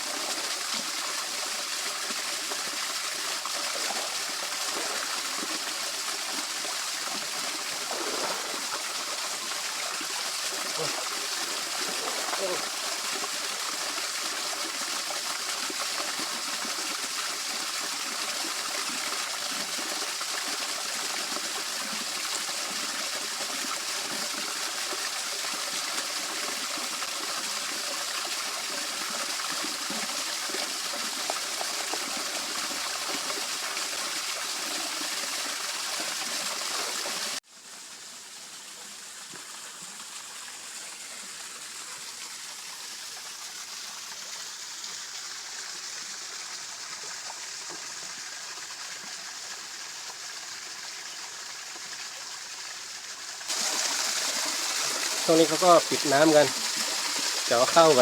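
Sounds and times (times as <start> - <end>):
water running over small waterfall: 0.0 - 58.0.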